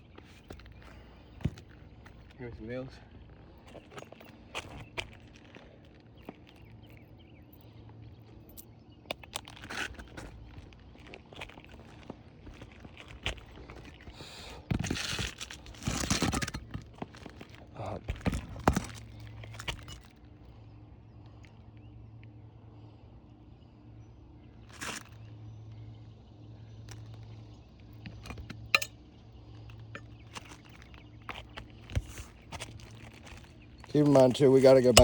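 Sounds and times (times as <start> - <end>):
low steady hum: 0.0 - 35.0
shingles crinkling and scraping: 9.3 - 20.3, 28.0 - 35.0.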